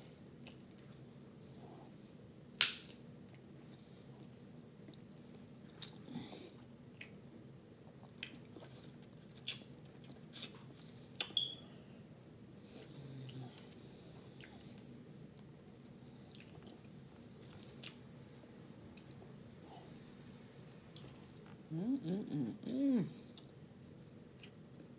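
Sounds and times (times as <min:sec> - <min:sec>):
person chewing food: 0:00.4 - 0:01.1, 0:03.2 - 0:11.4, 0:12.2 - 0:19.9.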